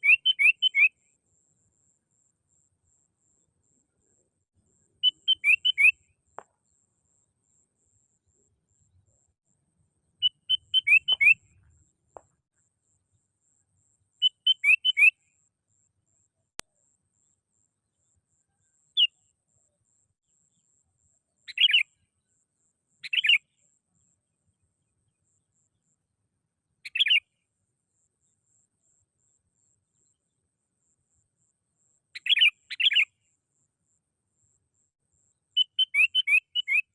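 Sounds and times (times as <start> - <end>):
bulbul singing: 0.0 - 1.0, 4.0 - 6.8, 10.2 - 12.4, 14.2 - 15.3, 21.5 - 22.0, 23.0 - 23.6, 26.8 - 27.4, 32.2 - 33.3, 35.6 - 36.9.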